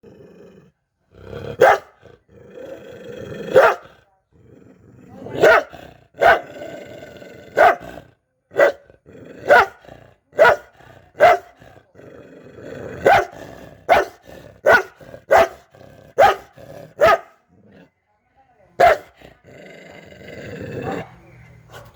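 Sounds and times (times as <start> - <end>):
dog growling: 0.0 - 8.2, 8.8 - 18.0, 18.9 - 21.2
dog barking angrily: 1.2 - 2.2, 3.2 - 4.0, 5.1 - 17.7, 18.8 - 19.5.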